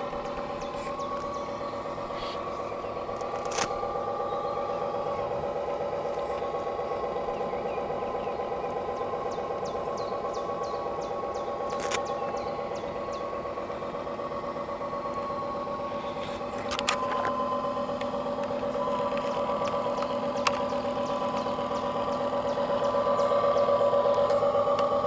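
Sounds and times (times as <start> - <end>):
model boat motor humming: 0.0 - 25.0
sharp clicks: 3.2 - 3.8, 11.7 - 12.2.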